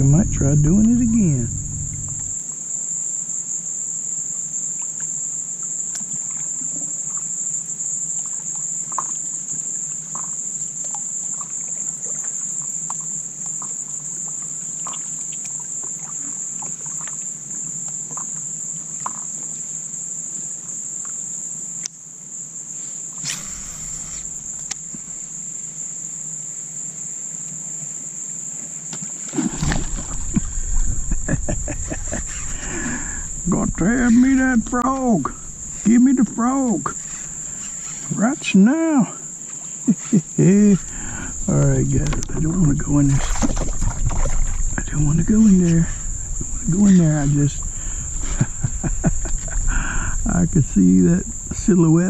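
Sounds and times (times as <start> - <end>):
low rumble with rapid knocks: 0.0 - 2.4, 29.6 - 38.0, 40.8 - 51.7
insects droning: 0.0 - 52.0
faint ticks: 21.8 - 22.0, 23.2 - 25.3.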